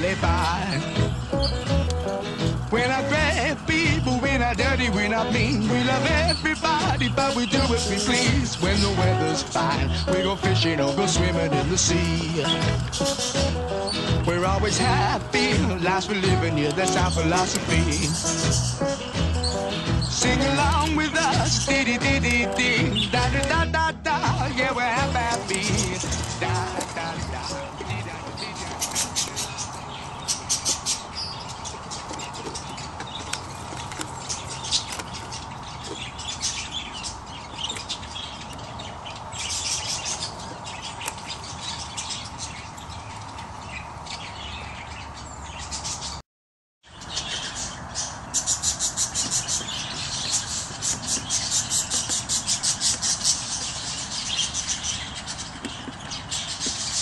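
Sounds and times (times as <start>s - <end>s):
budgerigars chirping: 0.0s - 46.2s, 46.9s - 57.0s.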